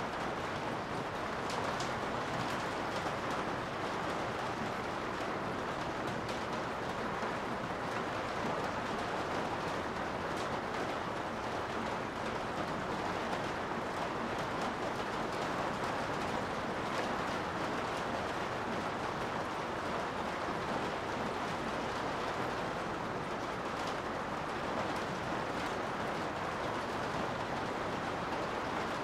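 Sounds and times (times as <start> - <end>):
steady rain hiss: 0.0 - 29.0.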